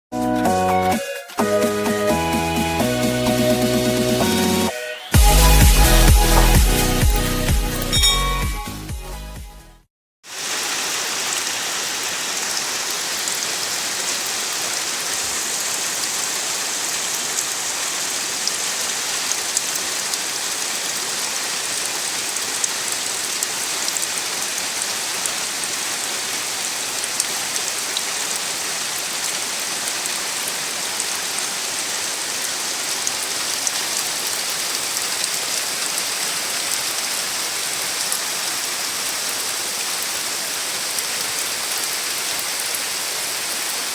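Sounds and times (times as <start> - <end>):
steady rain falling: 10.2 - 43.9.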